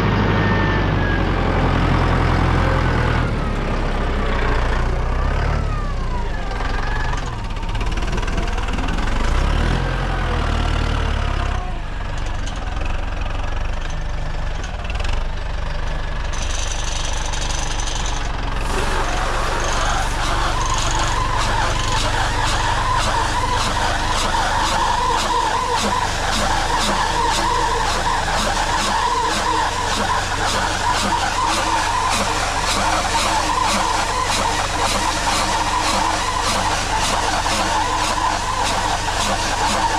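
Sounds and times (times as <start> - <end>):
machinery rattling and squealing: 0.0 - 39.9
tractor engine running: 0.0 - 39.9.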